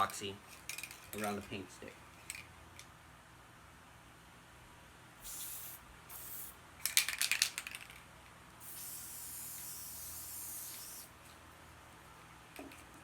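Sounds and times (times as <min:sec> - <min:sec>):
aerosol spray bursts: 0:05.2 - 0:06.6, 0:08.6 - 0:11.1.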